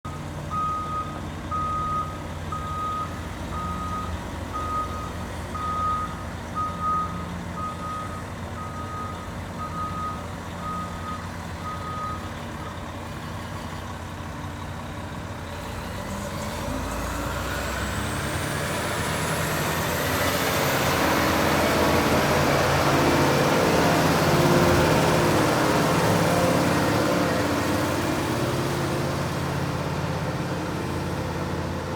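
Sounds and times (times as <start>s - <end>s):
reversing alarm beeps: 0.1s - 12.3s
diesel engine with rising whine: 0.1s - 31.9s.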